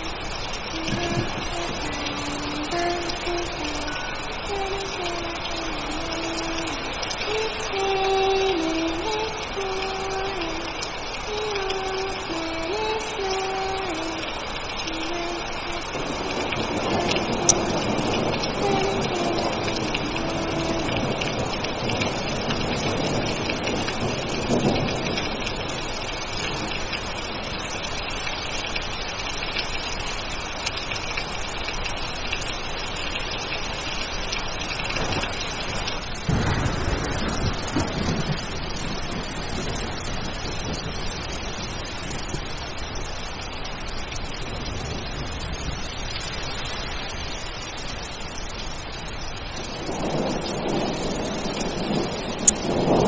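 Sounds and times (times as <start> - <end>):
thunder rumbling: 0.0 - 27.8, 34.6 - 43.5, 49.3 - 53.0
heavy rain: 0.0 - 53.0
faint wavering tune: 0.8 - 10.7.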